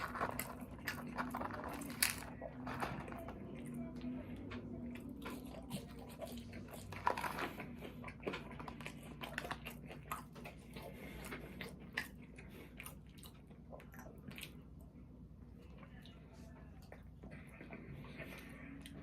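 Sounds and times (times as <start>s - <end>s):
person chewing and biting food: 0.0s - 2.5s, 4.9s - 14.9s.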